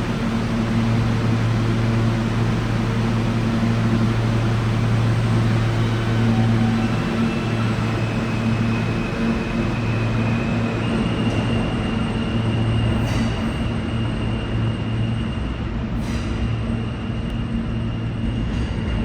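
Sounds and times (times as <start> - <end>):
high electrical whine: 0.0 - 12.4
subway train low hum: 0.0 - 19.0.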